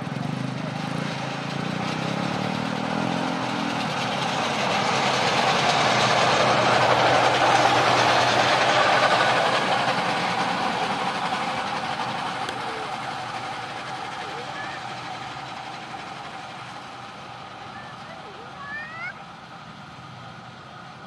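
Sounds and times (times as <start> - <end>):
small engine hum: 0.0 - 21.0
steel wheels rumbling on rails: 0.0 - 21.0.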